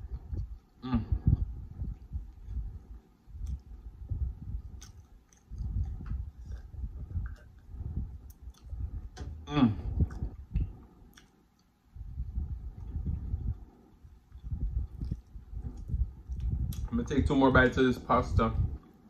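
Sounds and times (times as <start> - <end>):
chewing with wet mouth clicks: 0.1 - 9.1, 10.0 - 16.9
gulping juice: 4.4 - 16.9.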